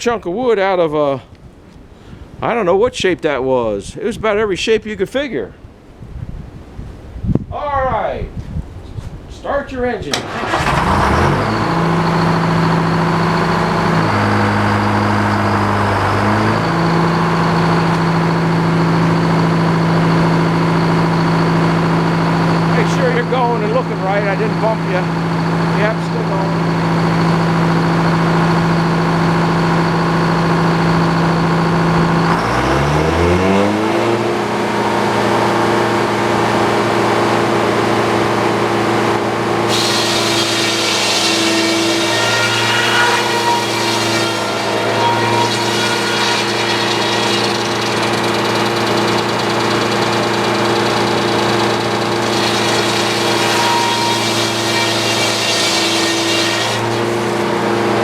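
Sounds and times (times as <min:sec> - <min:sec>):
sawmill engine running: 0:10.1 - 0:58.0
saw blade cutting log: 0:39.6 - 0:58.0.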